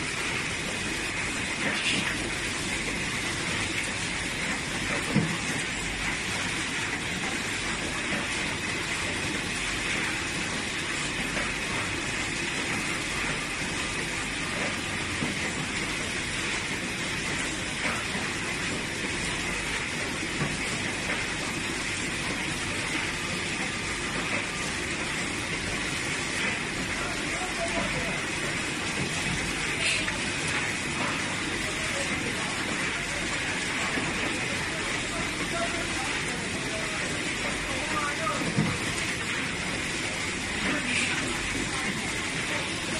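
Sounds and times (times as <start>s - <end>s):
welding machinery running: 0.0s - 42.9s.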